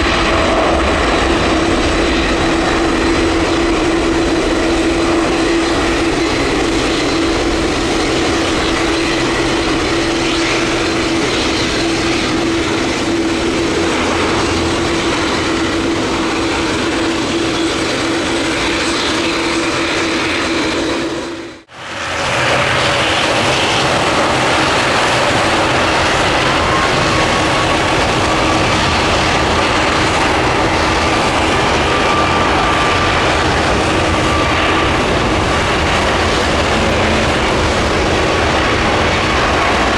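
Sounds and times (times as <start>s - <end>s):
jet engines droning: 0.0s - 39.9s
faint engine whine: 25.9s - 39.9s.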